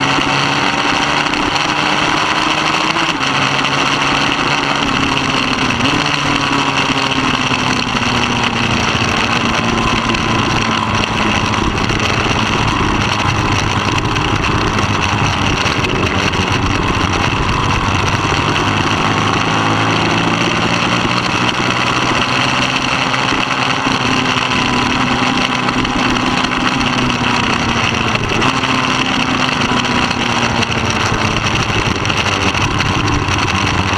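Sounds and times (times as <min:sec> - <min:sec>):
motorcycle engine racing: 0:00.0 - 0:33.9
steady rushing noise: 0:00.0 - 0:33.9.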